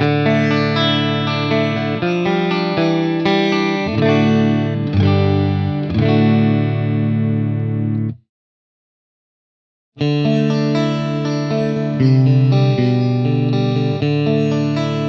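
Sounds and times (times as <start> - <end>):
clean electric guitar: 0.0 - 8.3, 10.0 - 15.0.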